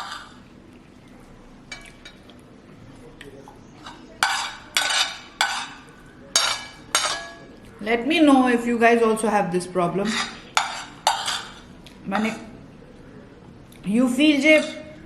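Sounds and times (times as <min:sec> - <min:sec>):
dishes and utensils clinking: 0:00.0 - 0:00.4, 0:01.7 - 0:02.4, 0:03.8 - 0:07.6, 0:10.0 - 0:12.5.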